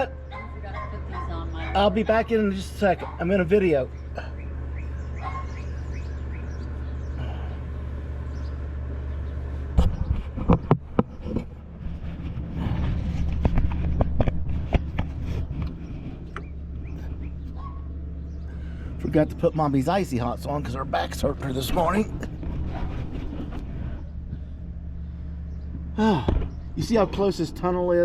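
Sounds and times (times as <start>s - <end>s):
low machine hum: 0.0s - 28.0s
clatter: 9.7s - 17.6s.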